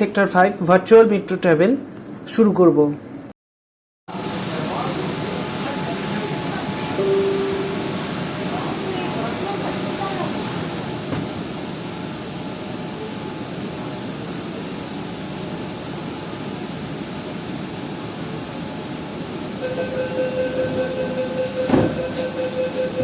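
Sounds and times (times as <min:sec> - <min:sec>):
metro train interior hum: 0:04.1 - 0:23.0
rapid electronic door beeping: 0:19.7 - 0:23.0.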